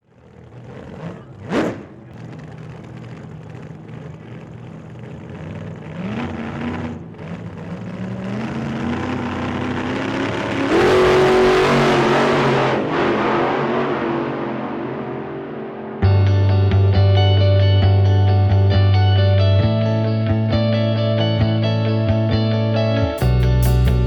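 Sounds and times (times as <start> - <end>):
race car engine accelerating: 0.0 - 18.0.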